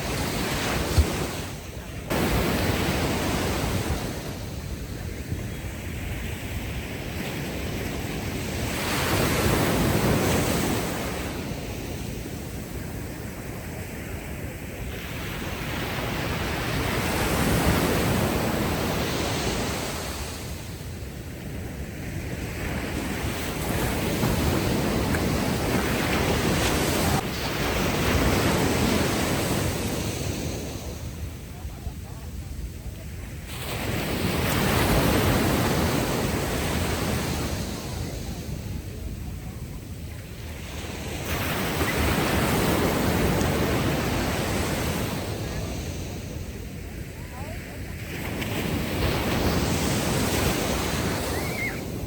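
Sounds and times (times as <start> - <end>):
ocean waves breaking on beach: 0.0 - 52.0.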